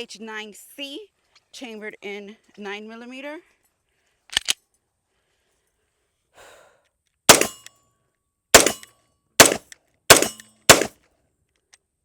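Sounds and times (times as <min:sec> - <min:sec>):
pistol shots: 0:07.3 - 0:07.7, 0:08.6 - 0:10.9.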